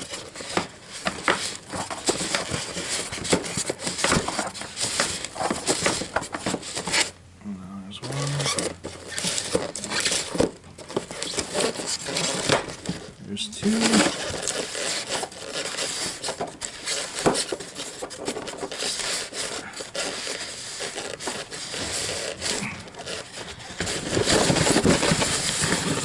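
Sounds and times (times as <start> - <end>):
packaging scraping and rubbing: 0.0 - 7.2, 8.0 - 26.0.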